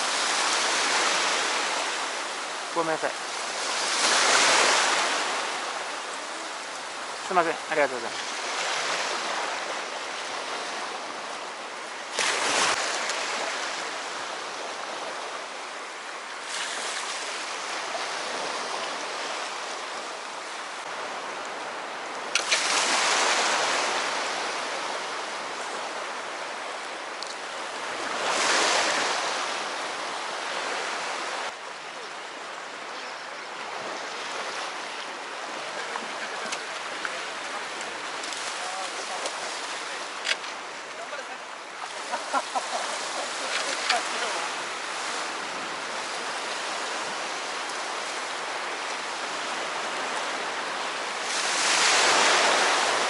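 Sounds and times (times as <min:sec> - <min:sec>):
sea waves washing onto shore: 0:00.0 - 0:53.0.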